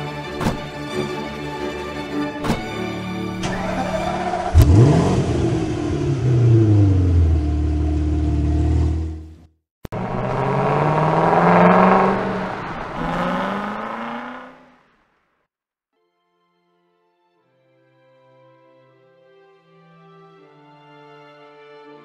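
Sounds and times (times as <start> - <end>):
car engine revving: 3.4 - 15.1.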